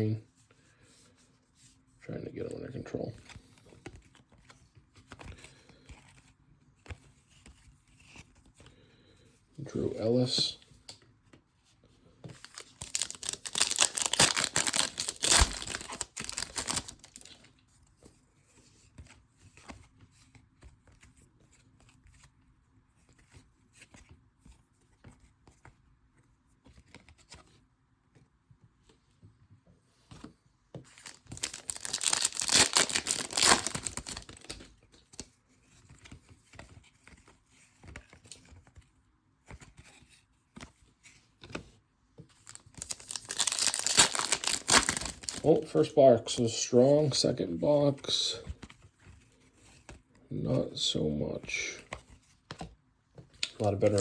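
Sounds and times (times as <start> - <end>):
cards rustling and clicking: 12.2 - 22.3, 30.1 - 46.6, 51.4 - 54.0
card pack wrapper tearing: 12.4 - 17.4, 30.9 - 34.7, 42.5 - 45.7, 53.4 - 54.0.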